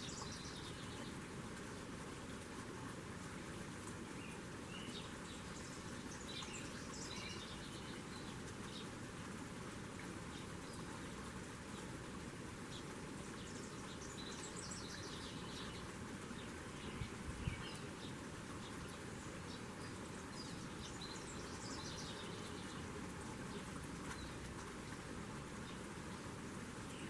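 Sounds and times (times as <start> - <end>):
small birds chirping: 0.0 - 1.3, 3.9 - 9.0, 12.7 - 27.0.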